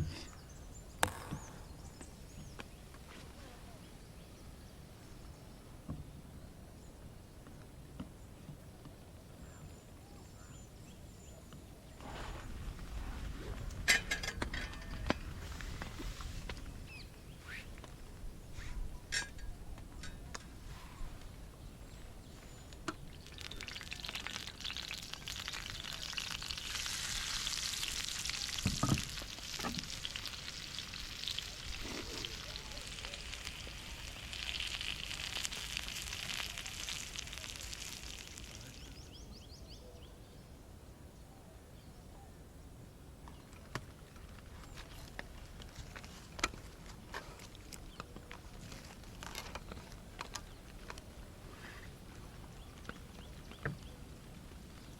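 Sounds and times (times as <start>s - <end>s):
sizzling on a campfire: 12.0s - 17.8s, 18.4s - 39.2s, 44.4s - 54.9s.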